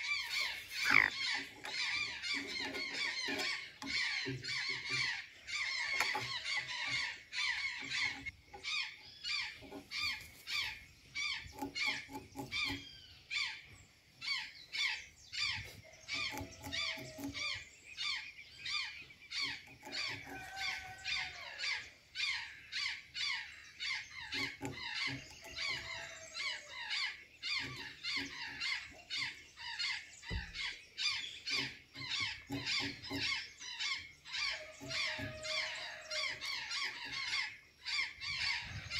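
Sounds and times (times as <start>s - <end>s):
jays squawking calls: 0.0s - 13.6s, 14.2s - 38.9s.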